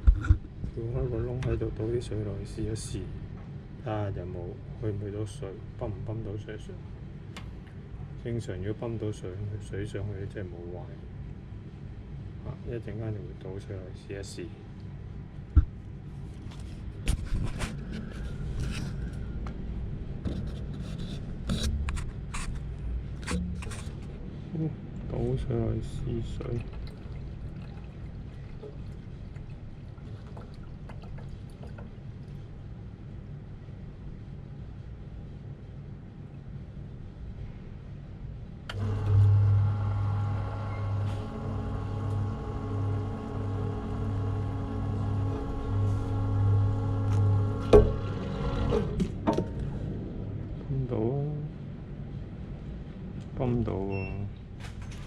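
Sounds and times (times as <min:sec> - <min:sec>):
steady low hum: 0:00.0 - 0:55.0
rubbing and scraping: 0:20.3 - 0:24.2
water pouring: 0:26.2 - 0:32.4
pump motor humming: 0:38.7 - 0:49.5.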